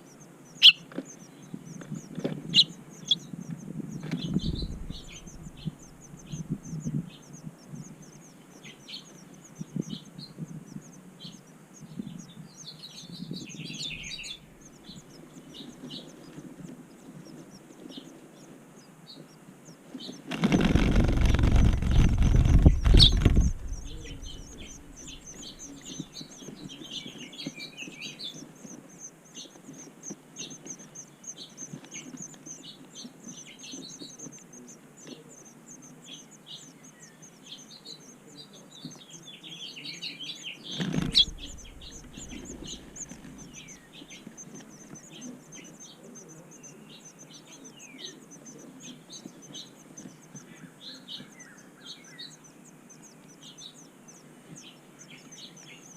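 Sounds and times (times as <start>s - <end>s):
small birds chirping: 0.0s - 55.9s
loud noise close to microphone: 20.3s - 25.9s.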